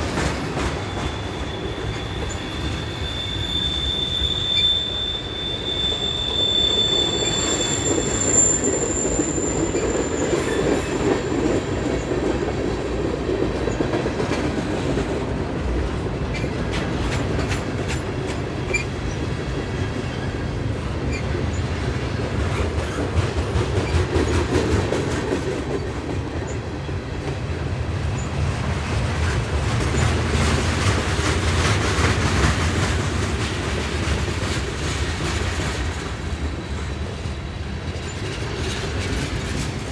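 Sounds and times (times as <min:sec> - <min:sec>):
freight train rumbling past: 0:00.0 - 0:39.9
high wheel squeal: 0:00.2 - 0:12.4.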